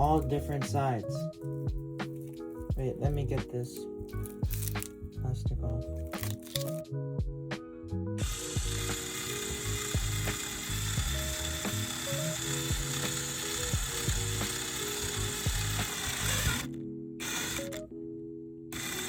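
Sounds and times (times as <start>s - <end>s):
power drill boring into plastic: 8.2s - 17.9s, 18.7s - 19.0s.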